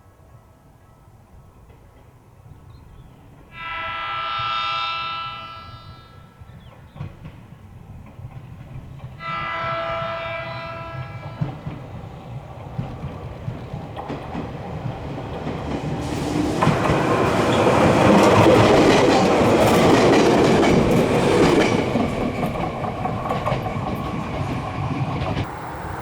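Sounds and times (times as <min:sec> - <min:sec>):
train rumbling on rails: 0:00.1 - 0:26.0
train horn blasts: 0:03.5 - 0:06.6, 0:09.2 - 0:11.8.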